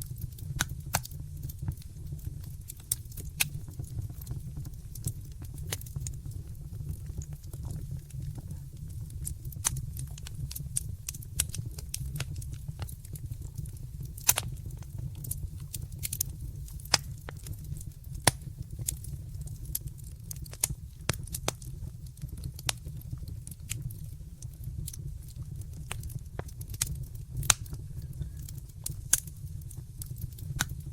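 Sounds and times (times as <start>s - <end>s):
steady low rumble: 0.0s - 19.6s
wood fire crackling and popping: 0.0s - 30.9s.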